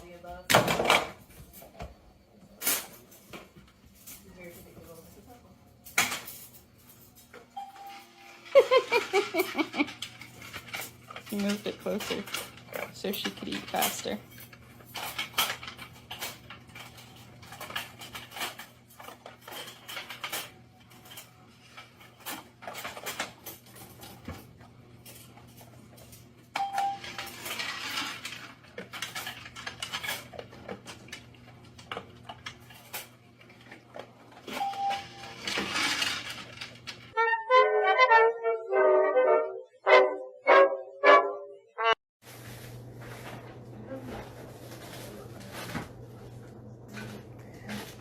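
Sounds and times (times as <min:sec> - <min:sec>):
short beep: 0:07.6 - 0:08.0, 0:34.6 - 0:35.4
dog eating from bowl clinks: 0:34.5 - 0:35.6.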